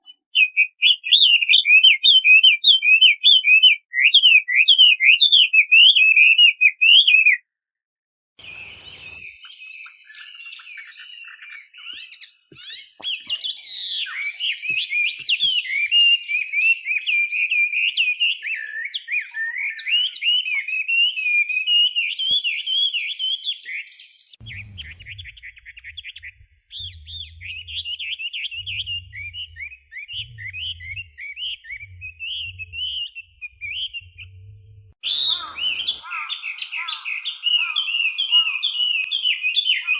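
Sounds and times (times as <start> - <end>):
bird singing whistled phrases: 0.0 - 7.4, 8.4 - 39.9
low intermittent rumble: 24.4 - 36.1.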